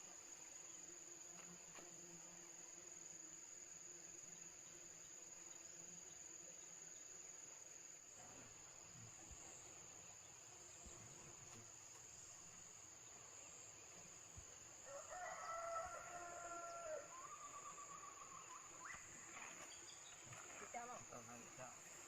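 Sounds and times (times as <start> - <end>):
rooster crowing: 14.8 - 18.1
high-pitched insect drone: 14.9 - 20.0.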